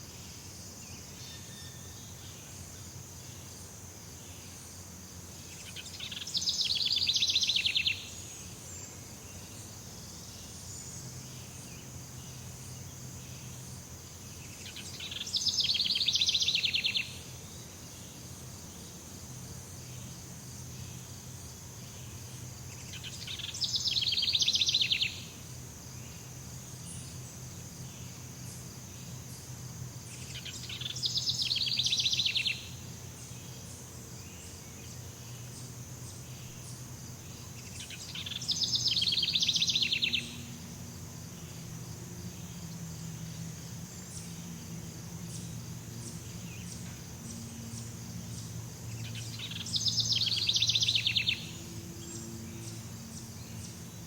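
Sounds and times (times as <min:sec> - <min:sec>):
insect drone: 0:00.0 - 0:54.0
rapid trilling call: 0:37.5 - 0:40.6, 0:45.3 - 0:53.8.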